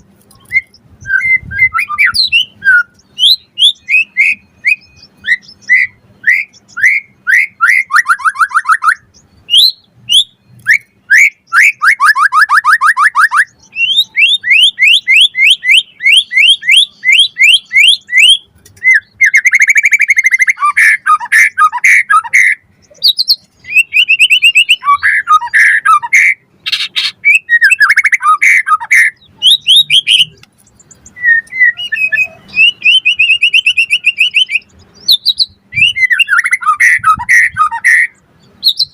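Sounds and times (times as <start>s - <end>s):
bird singing sliding whistles: 0.3s - 38.9s.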